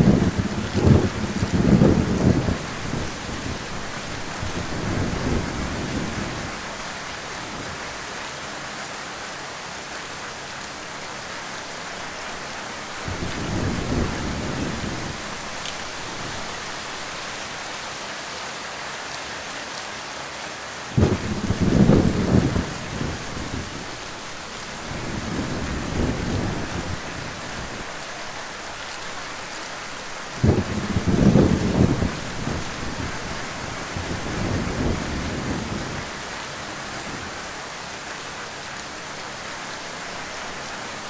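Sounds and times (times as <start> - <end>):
thunder rumbling: 0.0 - 6.7, 13.0 - 16.6, 21.0 - 28.0, 30.4 - 36.2
heavy rain falling: 0.0 - 41.0.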